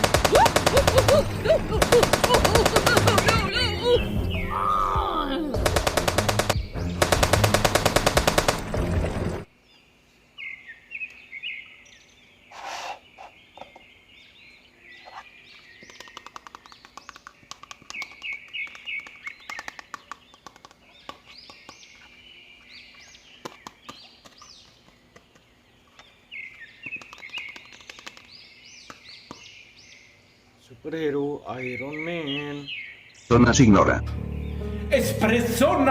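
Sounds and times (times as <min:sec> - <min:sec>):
birds chirping: 0:00.0 - 0:35.9
loud fast rattle: 0:01.8 - 0:03.5, 0:05.6 - 0:09.0.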